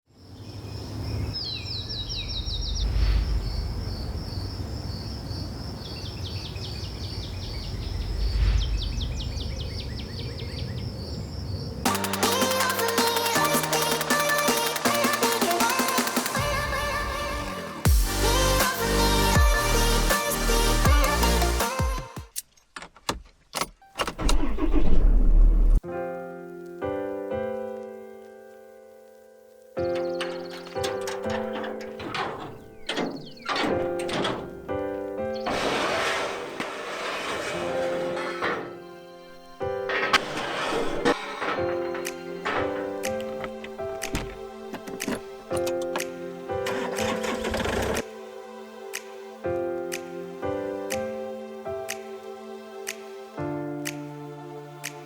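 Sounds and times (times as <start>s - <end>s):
songbird singing: 0.1s - 11.9s, 29.4s - 35.5s
electronic music: 11.9s - 22.2s
sharp clicks and knocks: 30.0s - 34.8s, 41.4s - 46.1s
vehicle engine starting: 46.6s - 48.1s.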